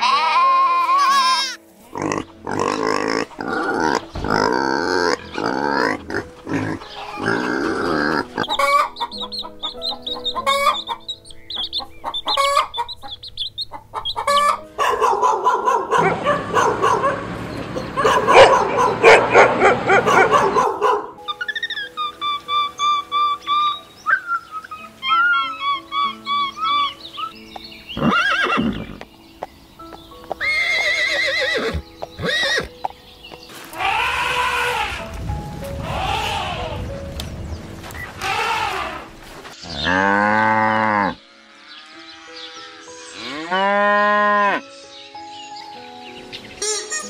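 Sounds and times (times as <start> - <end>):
animal calls: 0.0 - 11.2, 11.8 - 17.2, 17.8 - 27.4, 33.7 - 36.9, 37.9 - 41.2
light background music: 0.0 - 47.0.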